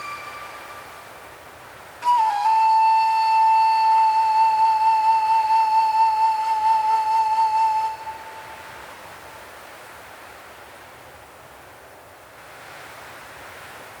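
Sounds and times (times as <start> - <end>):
long flute-like note: 0.0 - 1.4, 2.0 - 8.8
faint wind-like hiss: 0.0 - 14.0.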